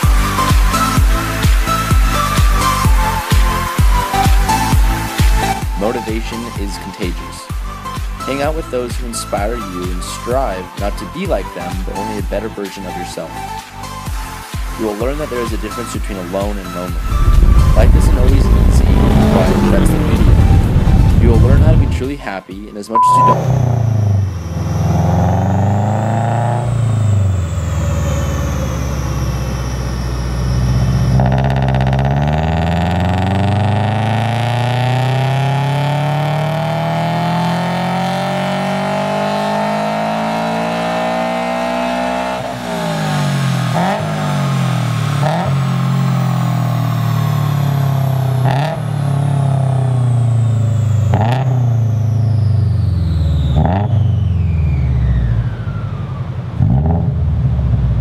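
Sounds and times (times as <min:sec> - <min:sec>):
car engine revving: 0:15.4 - 0:22.1, 0:23.0 - 0:58.0
engine rev blips: 0:16.6 - 0:22.0, 0:23.0 - 0:58.0.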